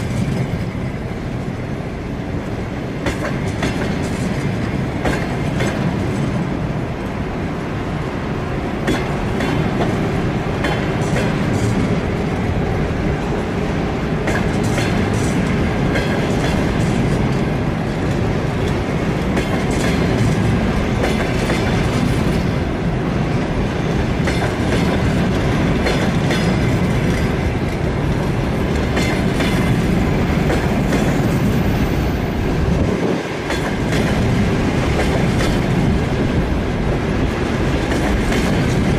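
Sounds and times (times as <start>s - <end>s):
train wheels rumbling on rail: 0.0s - 38.9s
wheels clicking over rail joints: 2.4s - 7.2s, 8.8s - 13.4s, 14.2s - 22.7s, 23.9s - 31.6s, 32.8s - 36.5s, 37.2s - 38.9s.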